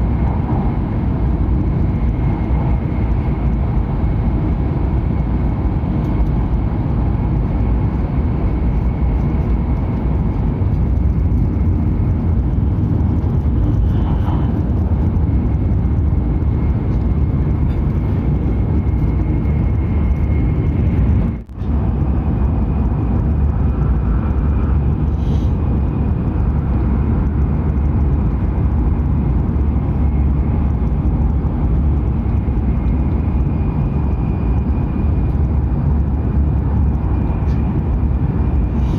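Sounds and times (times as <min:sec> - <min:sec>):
high-speed train rumbling: 0:00.0 - 0:38.9.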